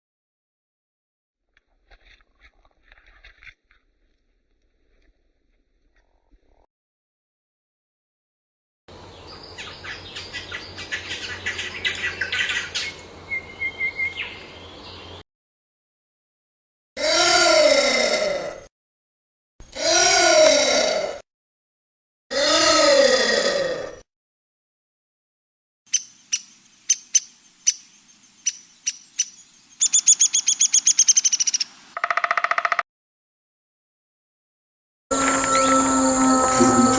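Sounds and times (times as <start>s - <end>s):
birds chirping: 8.9s - 15.2s, 25.9s - 32.0s, 35.1s - 36.9s
songbird chipping: 9.0s - 15.2s, 25.9s - 32.8s
wavering bird call: 35.1s - 36.9s.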